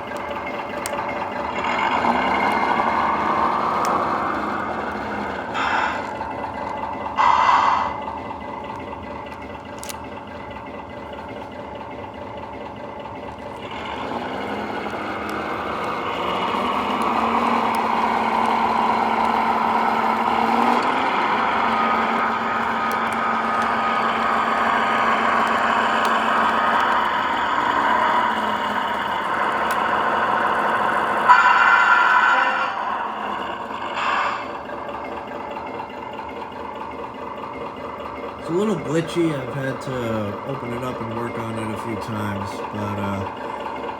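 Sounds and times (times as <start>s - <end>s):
model train motor whine: 0.0s - 10.5s, 13.3s - 36.5s.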